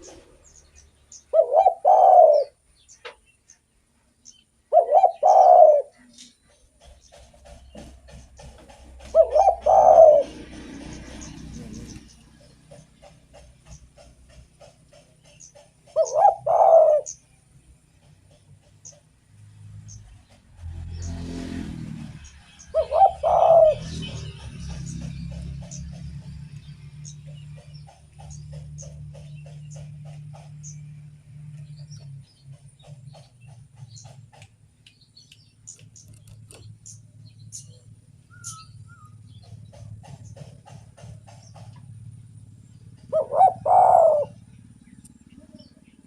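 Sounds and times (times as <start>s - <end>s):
small birds chirping: 0.0s - 46.0s
dove cooing: 1.3s - 2.6s, 4.7s - 6.4s, 7.4s - 14.1s, 15.6s - 17.3s, 22.7s - 24.6s, 43.0s - 44.8s.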